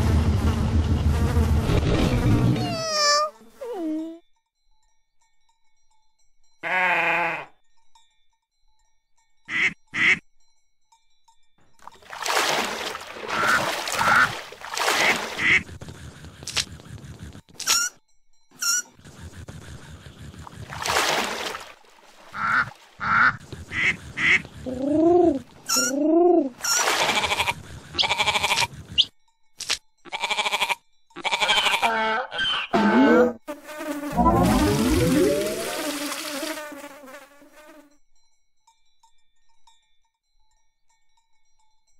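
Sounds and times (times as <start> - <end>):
duck quacks: 9.5 - 10.2, 15.0 - 15.7, 22.3 - 24.8.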